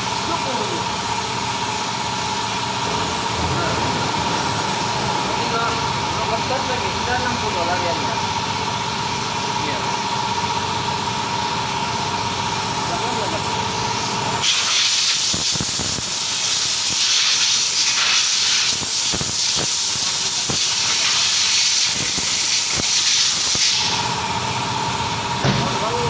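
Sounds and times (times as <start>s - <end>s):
compressed air hissing: 14.0s - 24.1s.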